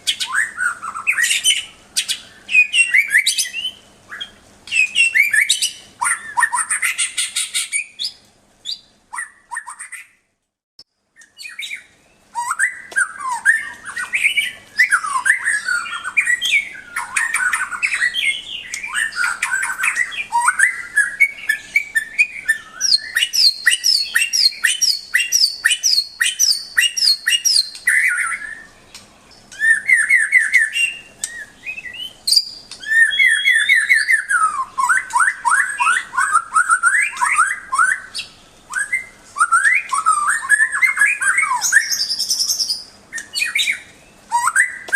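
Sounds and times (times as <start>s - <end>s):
bird singing varied whistles: 0.0s - 10.2s, 11.2s - 28.8s, 29.5s - 44.9s.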